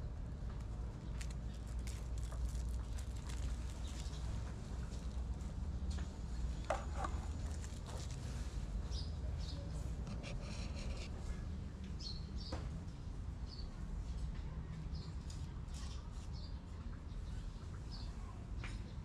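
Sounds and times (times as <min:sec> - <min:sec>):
small birds chirping: 0:01.0 - 0:05.2, 0:08.8 - 0:11.1.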